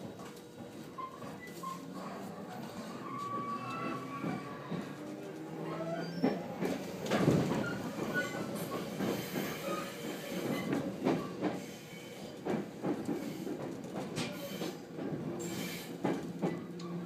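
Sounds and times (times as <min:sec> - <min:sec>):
train rumbling: 0:00.0 - 0:17.0
wheels clacking over rail joints: 0:02.5 - 0:11.7.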